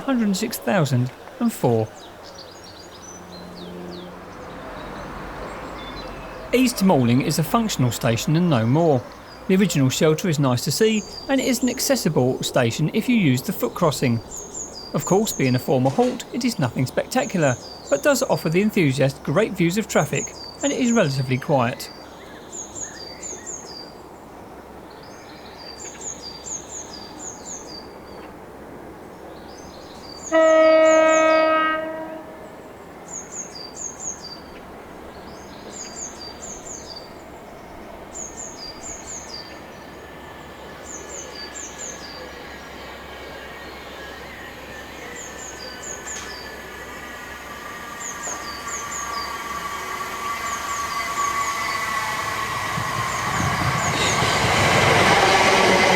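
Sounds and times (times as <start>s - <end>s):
birds chirping: 0.0s - 55.9s
electric train approaching: 0.0s - 55.9s
loud train horn blast: 30.2s - 32.6s, 45.7s - 55.9s.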